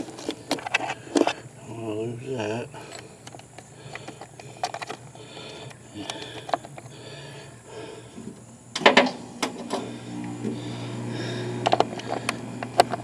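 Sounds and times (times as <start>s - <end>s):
clicks of small parts handled: 0.0s - 1.4s, 2.8s - 6.9s.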